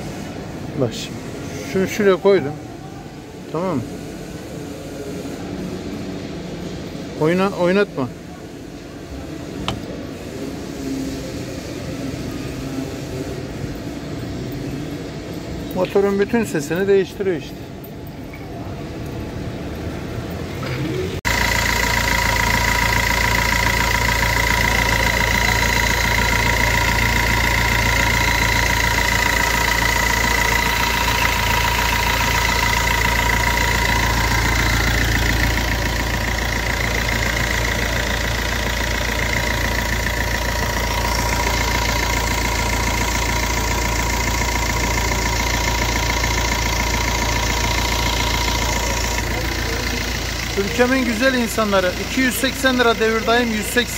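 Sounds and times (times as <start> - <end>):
car engine idling: 0.0 - 53.9
high whine: 18.1 - 53.8.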